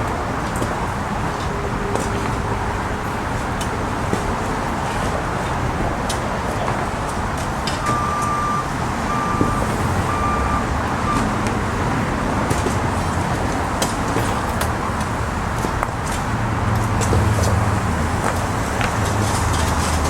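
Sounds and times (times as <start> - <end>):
construction machinery engine rumble: 0.0 - 20.0
backup alarm beeping: 7.7 - 11.8.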